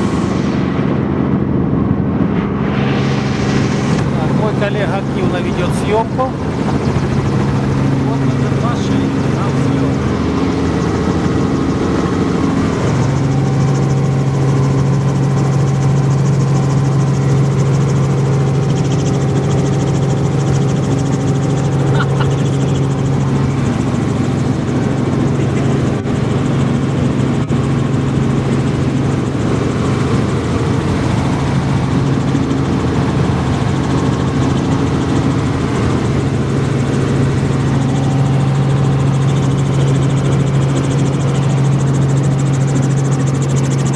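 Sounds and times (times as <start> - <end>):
helicopter engine and rotor noise: 0.0 - 43.9.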